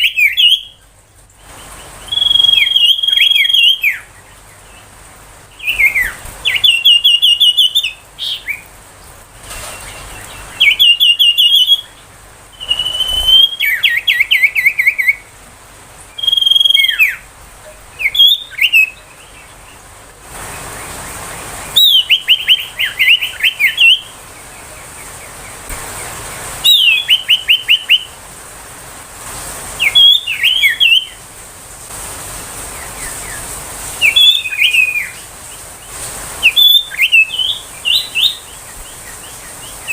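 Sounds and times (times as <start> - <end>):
bird singing trills and whistles: 0.0 - 4.9, 5.5 - 8.7, 9.6 - 15.3, 16.1 - 19.8, 21.7 - 25.4, 26.6 - 28.2, 29.8 - 31.2, 34.0 - 35.3, 36.4 - 39.9.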